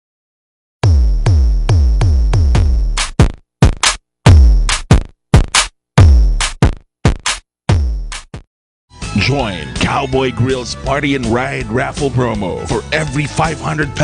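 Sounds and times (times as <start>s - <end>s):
electronic drum machine beat: 0.8s - 8.5s.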